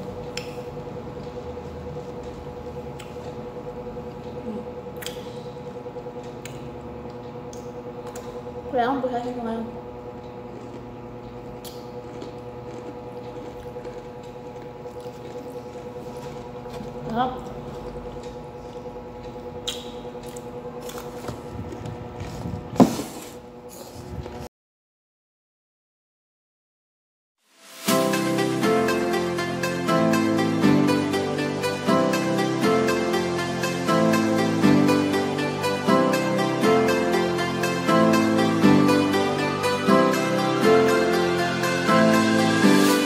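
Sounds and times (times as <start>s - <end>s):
steady background hum: 0.0s - 24.5s, 27.9s - 43.0s
person crunching snack: 10.4s - 11.0s, 11.6s - 17.0s, 19.7s - 21.8s
wet chewing: 10.4s - 19.0s.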